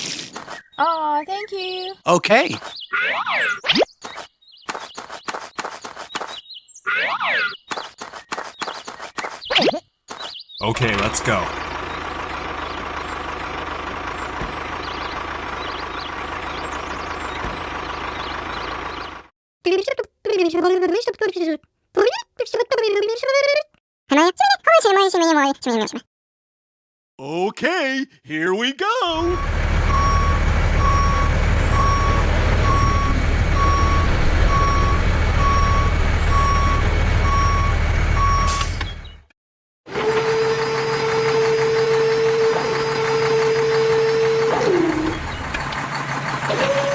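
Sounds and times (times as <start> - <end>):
low engine rumble: 10.6 - 19.3, 29.2 - 38.4, 41.2 - 46.9
truck reversing alarm beeping: 10.6 - 19.3, 29.1 - 39.3, 40.2 - 46.9
small vehicle motor droning: 10.8 - 19.3, 29.2 - 39.2, 39.9 - 46.9.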